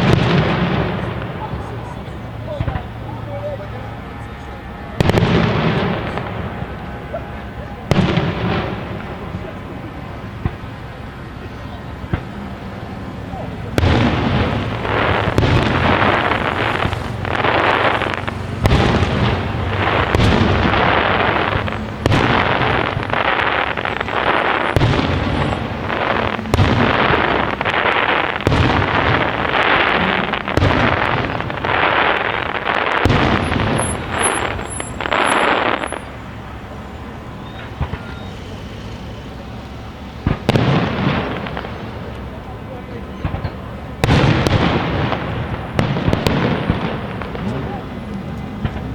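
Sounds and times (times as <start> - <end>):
firework crackle and rumble: 0.0 - 48.9
firework shell bursts: 13.8 - 31.0, 33.0 - 36.2.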